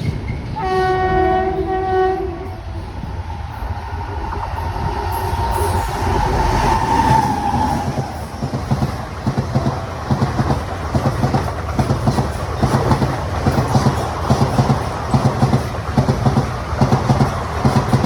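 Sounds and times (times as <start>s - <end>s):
train horn: 0.6s - 2.9s
train wheels clacking over rail joints: 7.2s - 18.0s.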